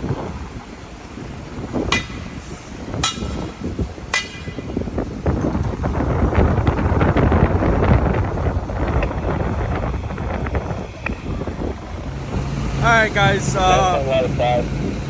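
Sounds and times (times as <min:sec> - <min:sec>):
wind rumble on microphone: 0:00.0 - 0:15.0
hammer clanging on metal valve: 0:01.9 - 0:04.8.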